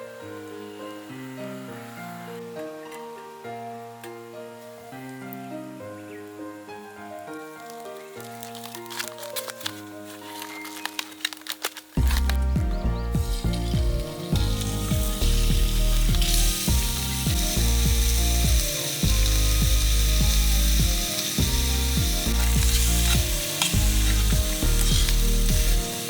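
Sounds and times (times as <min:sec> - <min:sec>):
background music: 0:00.0 - 0:26.0
meat sizzling in a pot: 0:13.1 - 0:26.0.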